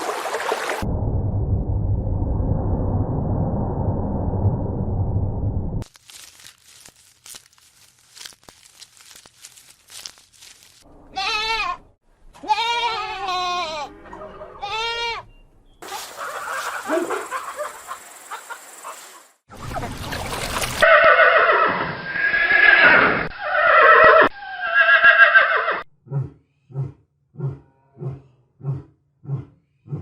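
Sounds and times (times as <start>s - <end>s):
horse whinnying: 20.8s - 25.9s.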